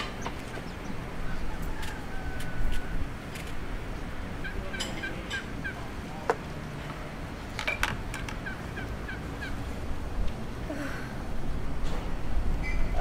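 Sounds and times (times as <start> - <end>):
bird chirping: 0.0 - 2.0.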